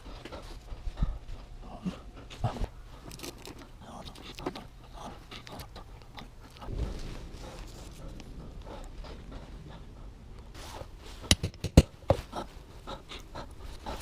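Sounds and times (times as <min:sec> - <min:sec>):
short low rumble: 0:06.6 - 0:11.1
tools clicking and scraping: 0:11.3 - 0:12.2.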